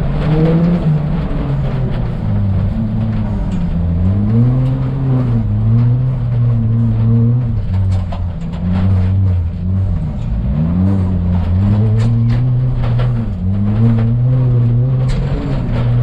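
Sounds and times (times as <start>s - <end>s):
rally car engine under hard driving: 0.0s - 16.0s.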